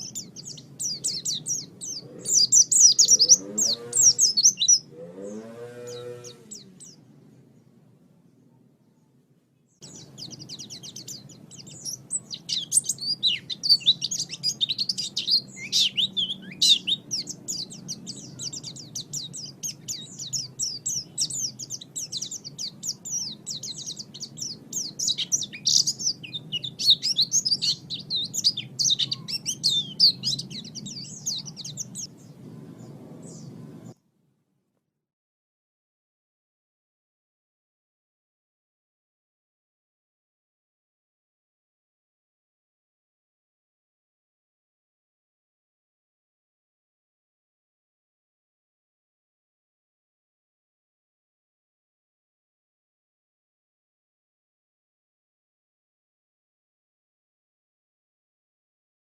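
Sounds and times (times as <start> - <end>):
bird twittering song: 0.0 - 34.0
low steady hum: 5.7 - 34.3.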